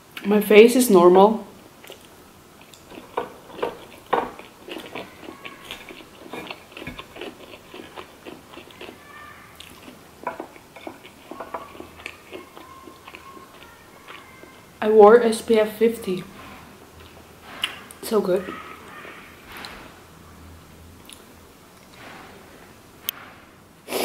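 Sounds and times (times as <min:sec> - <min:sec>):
small crunches while chewing: 0:01.8 - 0:14.7.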